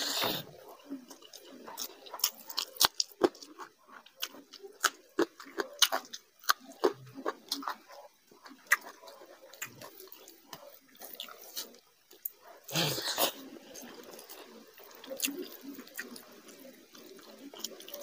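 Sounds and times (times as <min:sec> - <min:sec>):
wet chewing: 0:00.0 - 0:18.0
lip smacks and mouth clicks: 0:01.0 - 0:12.4.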